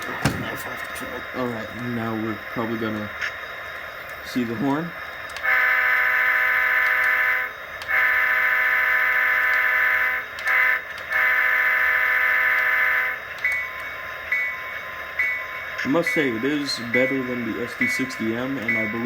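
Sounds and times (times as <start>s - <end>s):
locomotive bell ringing: 0.0s - 3.1s, 12.5s - 19.0s
model locomotive diesel horn: 4.3s - 19.0s.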